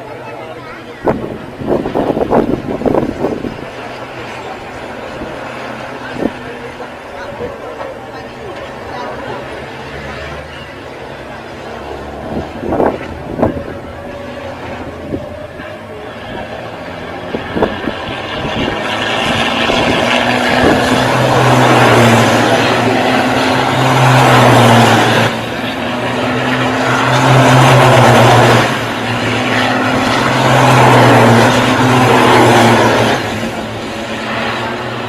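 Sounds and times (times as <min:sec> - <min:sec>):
racing engines at high revs: 0:00.0 - 0:35.0.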